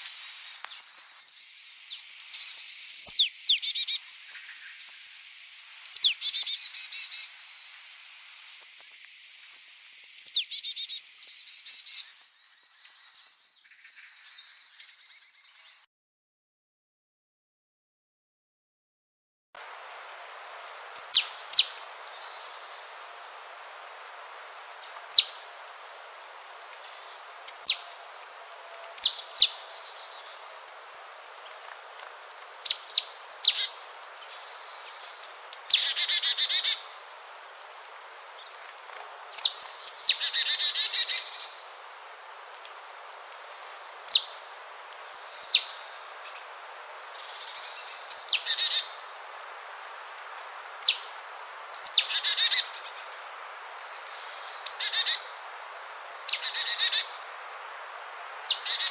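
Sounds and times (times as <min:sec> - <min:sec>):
faint outdoor hiss: 0:00.0 - 0:15.9, 0:19.6 - 0:58.9
songbird chirping: 0:00.0 - 0:15.9, 0:19.6 - 0:58.9.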